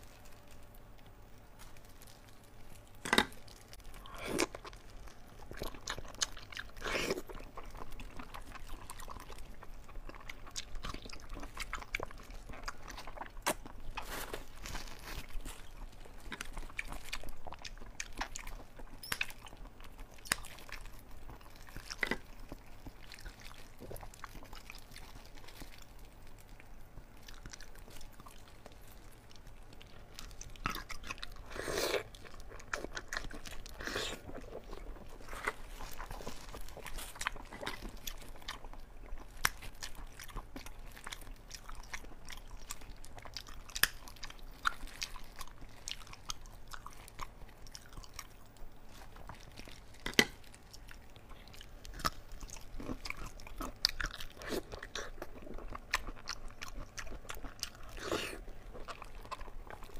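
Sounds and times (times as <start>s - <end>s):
chewing and biting food: 0.0s - 59.9s.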